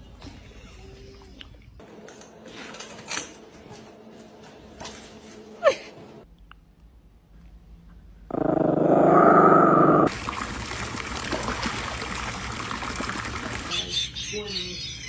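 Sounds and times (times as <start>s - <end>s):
dog growling: 8.3s - 10.1s.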